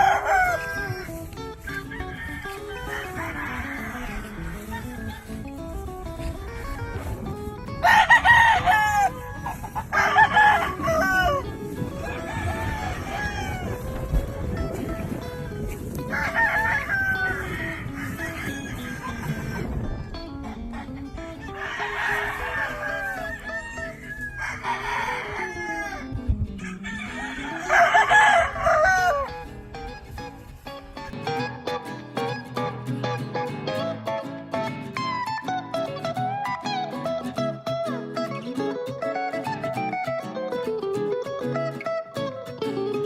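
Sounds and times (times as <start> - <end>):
roosters crowing: 0.0 - 7.2, 7.8 - 29.6
background music: 29.3 - 43.0.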